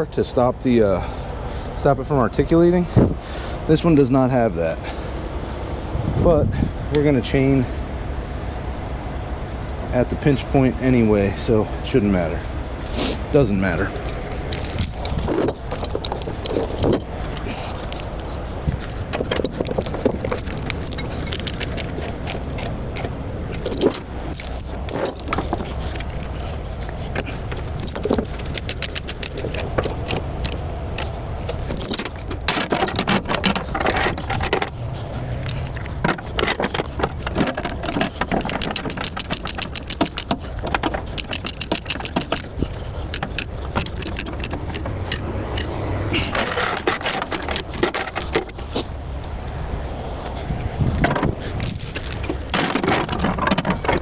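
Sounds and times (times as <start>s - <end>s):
low steady rumble: 2.0s - 54.0s
chains rattling and clinking: 13.4s - 48.7s, 50.4s - 54.0s.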